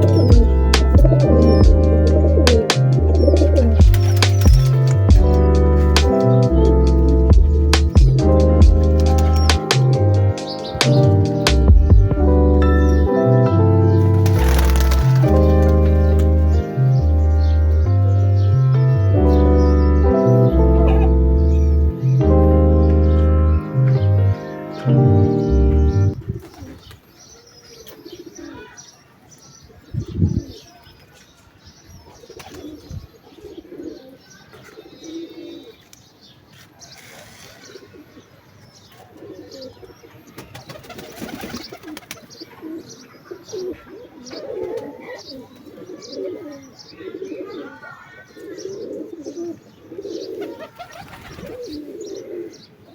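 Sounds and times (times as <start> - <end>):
pigeons cooing: 0.0 - 12.0, 20.7 - 21.5, 27.8 - 28.8, 32.1 - 35.8, 37.0 - 38.3, 38.9 - 52.9
high chirps: 0.0 - 12.1.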